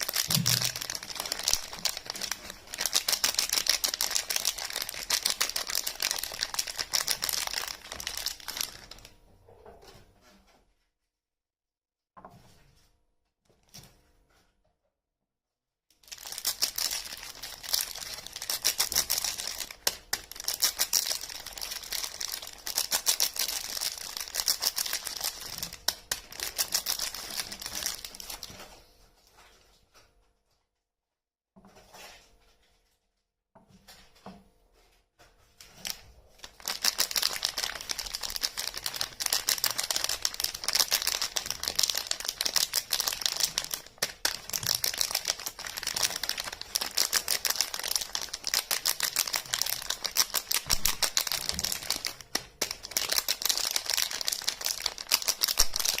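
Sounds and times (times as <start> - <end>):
wrappers tearing and crinkling: 0.0 - 9.1, 16.0 - 28.7, 35.6 - 56.0.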